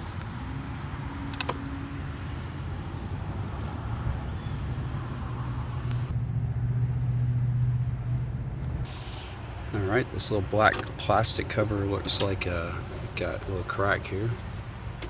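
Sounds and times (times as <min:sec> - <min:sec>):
car engine idling: 0:07.8 - 0:15.0.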